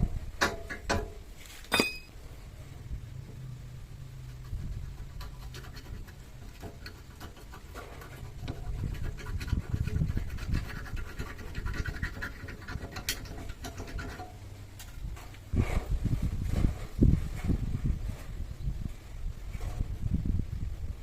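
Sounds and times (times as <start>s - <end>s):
low steady hum: 0.0s - 21.0s
scratching and scraping: 1.4s - 2.1s, 4.1s - 20.1s.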